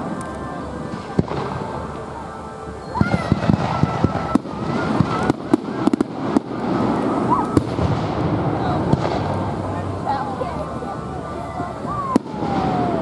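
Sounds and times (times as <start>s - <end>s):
thin high tone: 0.0s - 5.5s
fireworks bursts rumbling: 0.0s - 13.0s
crackling firework pops: 2.9s - 10.0s, 11.7s - 13.0s
sharp firework crack: 3.0s - 10.4s.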